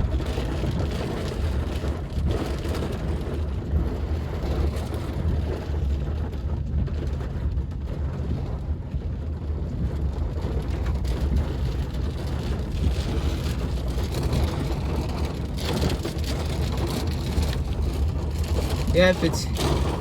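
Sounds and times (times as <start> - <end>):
heavy rain hiss: 18.9 - 19.5.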